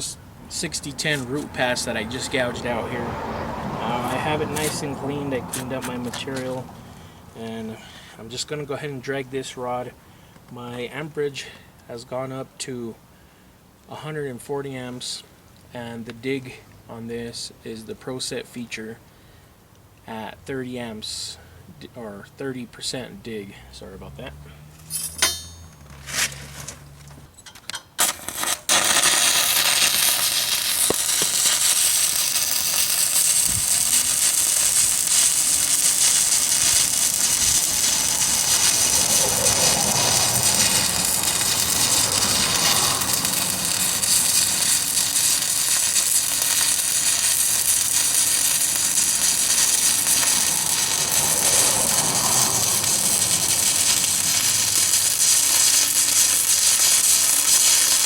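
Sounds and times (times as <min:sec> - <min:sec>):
welding arc crackling: 0:00.0 - 0:03.0, 0:03.9 - 0:06.6, 0:28.0 - 0:58.0.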